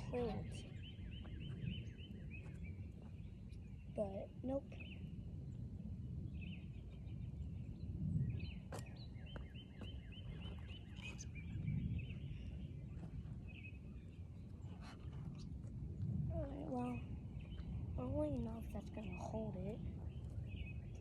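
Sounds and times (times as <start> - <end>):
small bird chirping: 0.0 - 5.1, 6.4 - 15.5
low outdoor rumble: 0.0 - 21.0.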